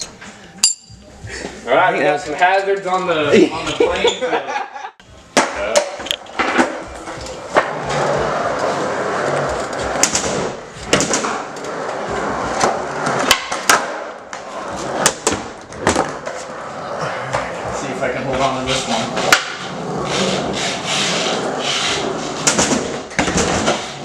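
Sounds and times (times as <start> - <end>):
skateboard wheels rolling: 6.2 - 24.0.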